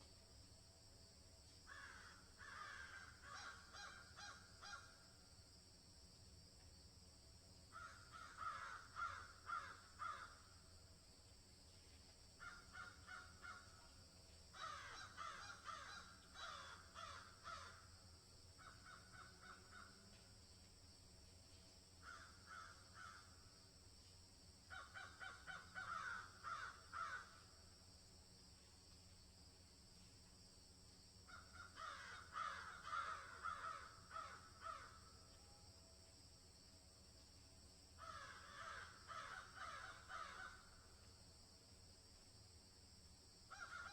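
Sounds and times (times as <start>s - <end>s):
faint bird calls: 12.4s - 17.8s, 43.5s - 43.9s.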